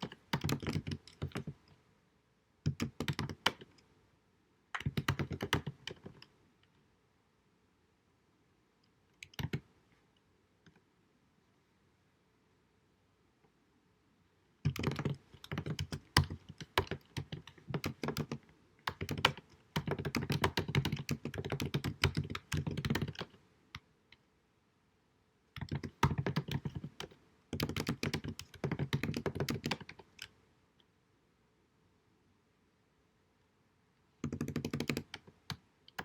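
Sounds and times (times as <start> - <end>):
keyboard typing: 0.0 - 1.7, 2.6 - 3.9, 4.8 - 6.3, 9.2 - 9.7, 14.6 - 23.4, 25.6 - 30.4, 34.2 - 36.0.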